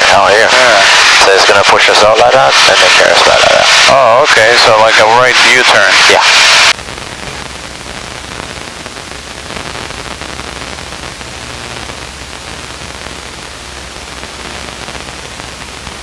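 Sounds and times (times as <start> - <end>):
steady low hum: 6.7 - 16.0.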